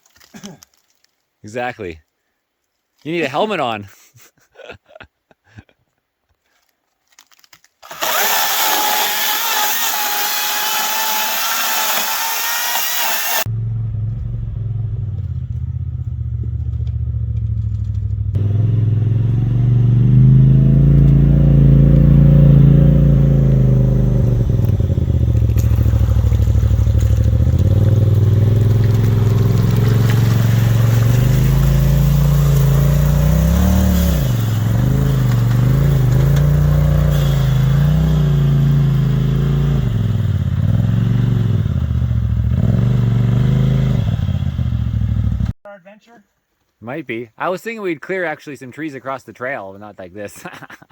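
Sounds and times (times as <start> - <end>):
engine running and revving: 7.9 - 45.5.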